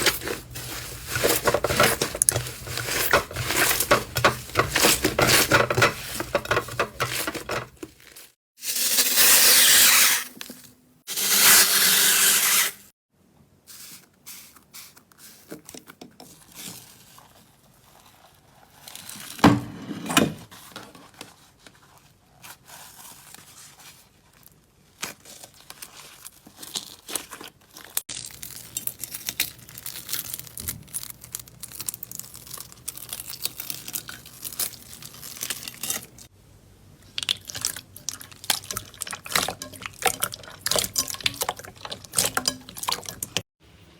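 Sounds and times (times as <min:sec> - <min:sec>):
slime crackling and popping: 0:26.6 - 0:36.0.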